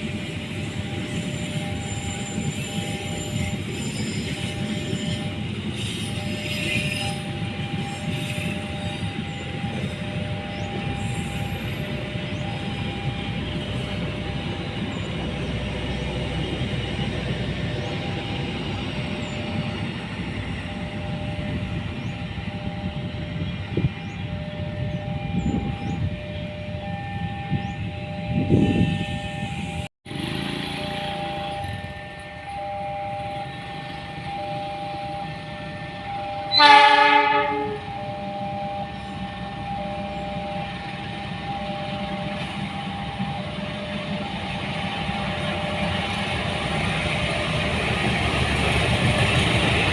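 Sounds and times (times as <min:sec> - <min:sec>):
train wheels rumbling on rails: 0:00.0 - 0:49.9
two-note electronic tone: 0:30.9 - 0:46.2.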